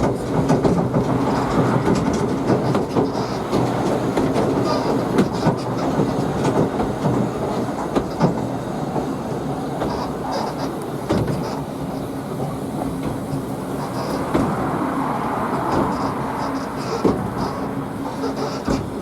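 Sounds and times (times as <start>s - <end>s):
train rumbling and rattling: 0.0s - 19.0s
faint high wheel squeals: 1.2s - 6.4s, 9.5s - 19.0s.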